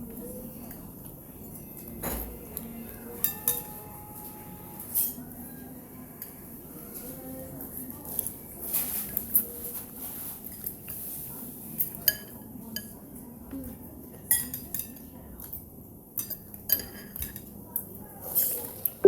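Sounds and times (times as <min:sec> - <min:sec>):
cutlery clinking against dishes: 0:01.5 - 0:05.4, 0:08.0 - 0:13.2, 0:14.1 - 0:19.0.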